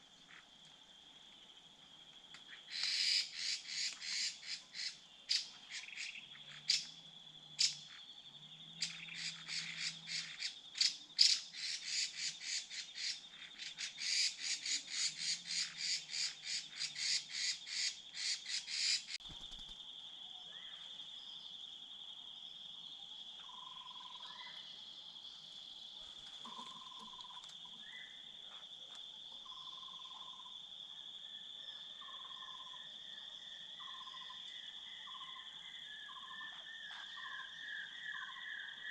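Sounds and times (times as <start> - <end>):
bird harsh repeated calls: 2.7 - 6.9, 8.8 - 19.7.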